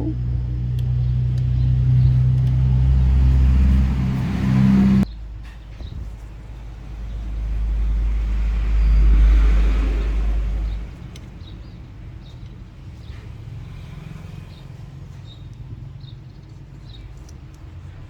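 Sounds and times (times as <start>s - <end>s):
vehicle passing by rumble: 0.0s - 18.0s
faint light ticks: 15.2s - 18.0s.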